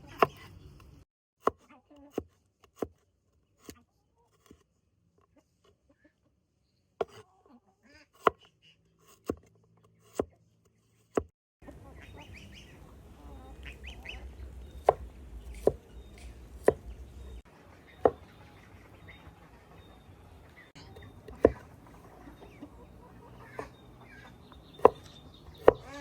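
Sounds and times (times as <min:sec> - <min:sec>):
distant chickens calling: 0:11.6 - 0:26.0.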